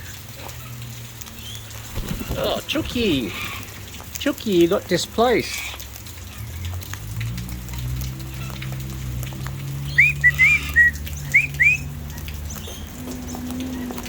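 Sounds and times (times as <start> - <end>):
short rising whistles: 9.9 - 11.9.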